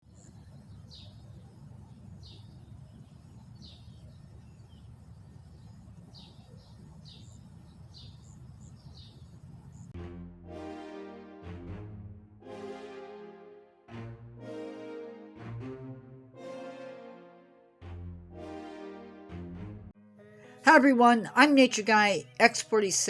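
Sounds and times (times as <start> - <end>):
bird chirping: 0.0 - 9.9
music: 10.0 - 23.0.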